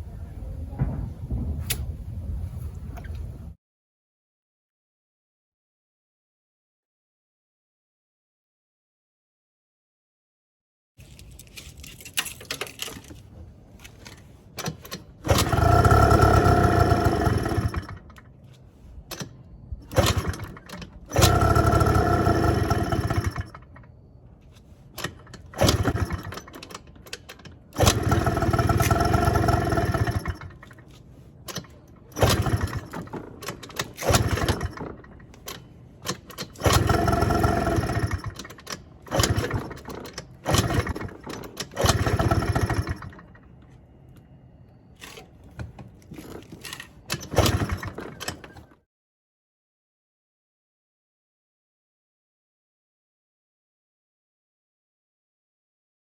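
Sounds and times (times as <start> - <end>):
scooter starter cranking engine: 14.0 - 18.4, 19.1 - 23.9, 24.7 - 43.5, 45.9 - 48.8.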